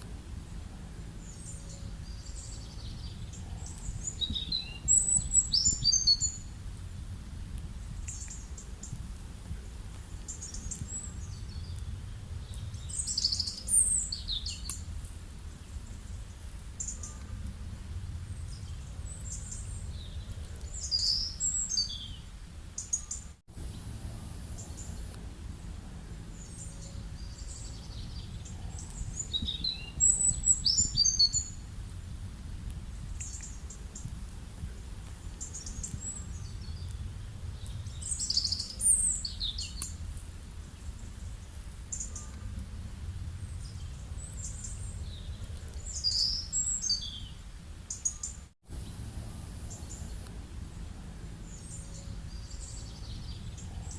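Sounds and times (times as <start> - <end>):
birds chirping: 0.0 - 6.6, 7.6 - 31.9, 32.7 - 53.9
low outdoor rumble: 0.0 - 53.9.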